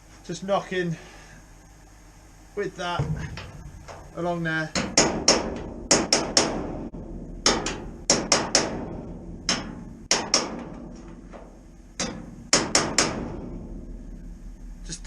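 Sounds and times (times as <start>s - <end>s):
hammer striking metal: 4.8s - 10.8s, 12.0s - 13.6s.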